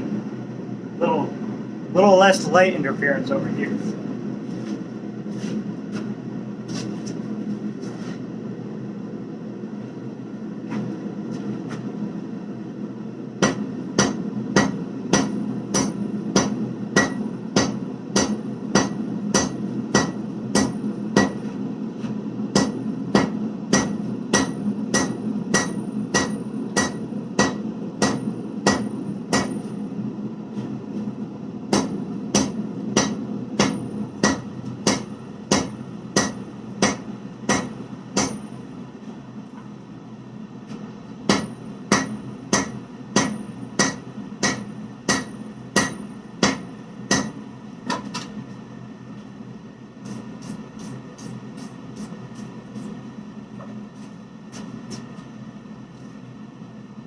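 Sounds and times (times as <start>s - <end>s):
hammer ringing on anvil: 13.4s - 21.4s, 22.6s - 29.7s, 31.7s - 38.6s, 41.3s - 47.4s.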